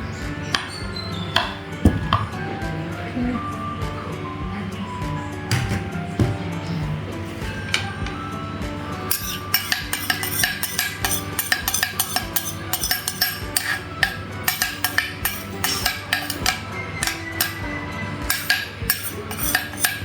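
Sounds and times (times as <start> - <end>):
background music: 0.0 - 20.0
utensil clinking against a dish: 9.0 - 20.0.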